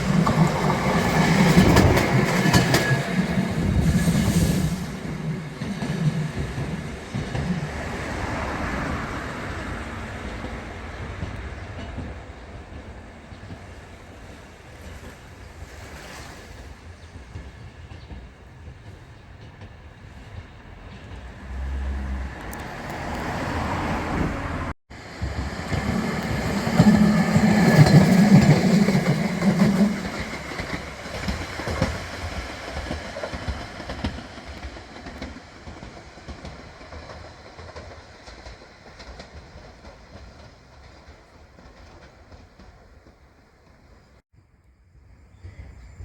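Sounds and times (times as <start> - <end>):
train passing on track: 0.0 - 44.2.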